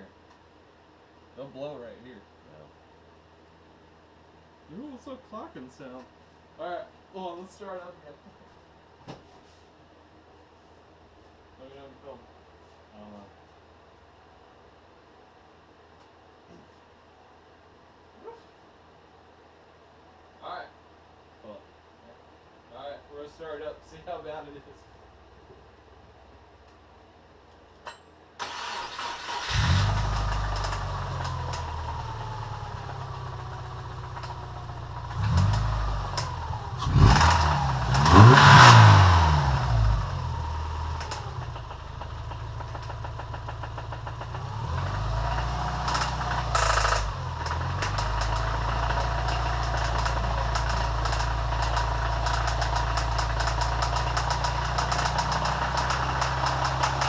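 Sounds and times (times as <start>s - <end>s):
car engine starting and revving: 28.4s - 57.0s
rapid engine knocking: 41.0s - 57.0s.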